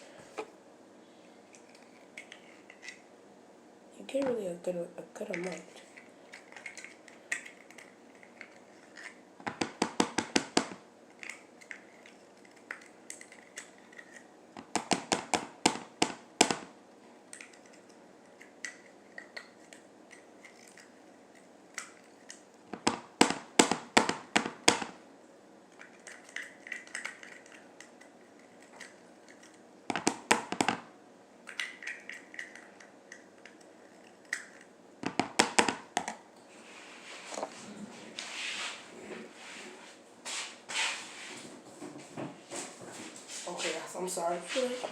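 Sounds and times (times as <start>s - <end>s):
faint handling sounds: 36.4s - 44.9s.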